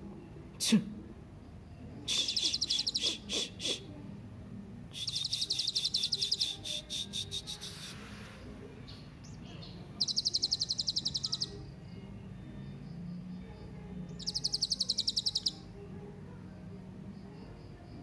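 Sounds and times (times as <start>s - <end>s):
parrot high-pitched trills: 2.2s - 3.5s, 10.0s - 11.5s, 14.2s - 15.6s.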